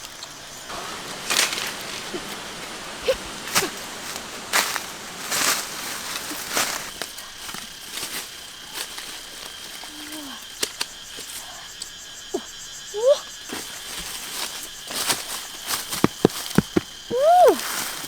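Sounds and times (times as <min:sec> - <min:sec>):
insect drone: 0:00.0 - 0:18.0
calls bending in pitch: 0:00.6 - 0:06.8.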